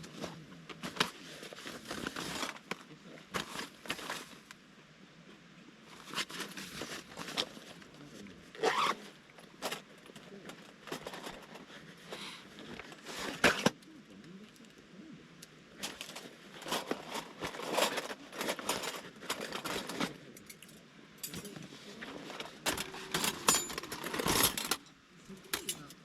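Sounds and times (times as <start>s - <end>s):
rustling handling noise: 0.0s - 4.6s, 5.8s - 14.9s, 15.6s - 26.0s
metal clinks and knocks: 22.7s - 24.8s, 25.5s - 26.0s.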